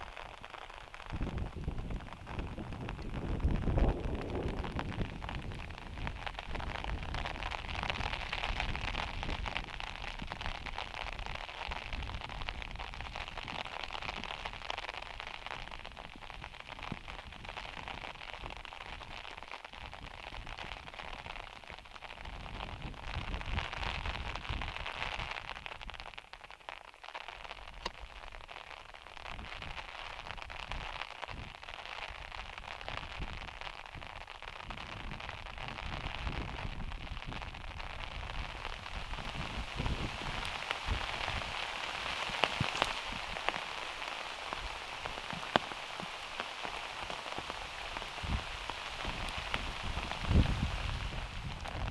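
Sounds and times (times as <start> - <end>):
heavy rain on metal roof: 0.0 - 26.8, 29.2 - 51.9.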